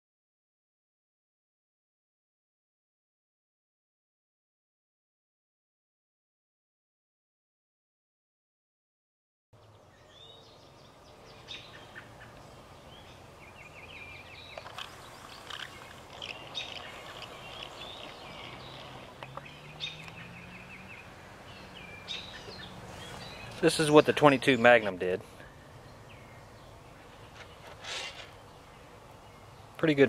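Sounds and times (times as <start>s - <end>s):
birds chirping and trilling: 9.6s - 30.0s
outdoor background hiss: 9.6s - 30.0s.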